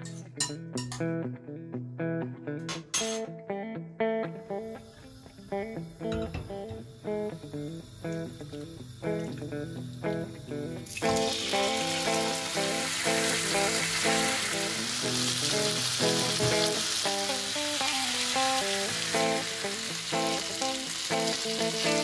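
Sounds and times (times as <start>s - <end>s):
background music: 0.0s - 22.0s
chicken sizzling in a frying pan: 4.8s - 22.0s.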